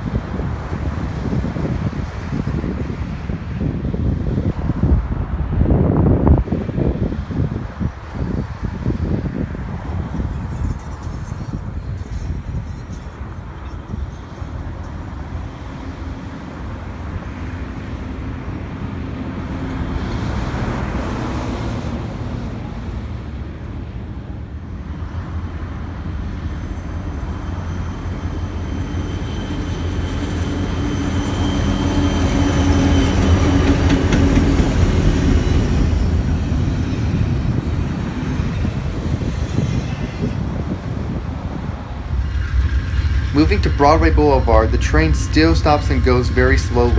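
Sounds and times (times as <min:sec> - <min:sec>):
diesel train engine and rail rumble: 0:00.0 - 0:46.9
thin high steady tones: 0:24.9 - 0:46.9.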